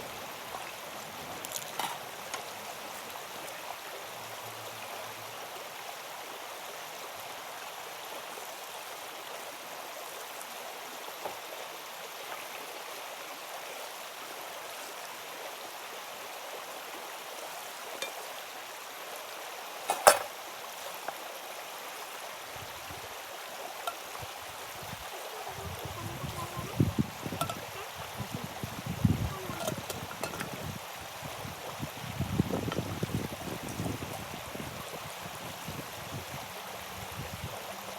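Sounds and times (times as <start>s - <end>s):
stream rushing: 0.0s - 37.9s.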